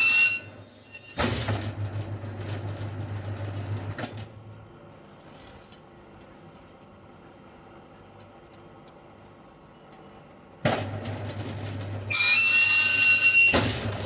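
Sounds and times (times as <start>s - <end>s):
high ringing whine: 0.0s - 1.2s
low mains hum: 1.3s - 12.1s.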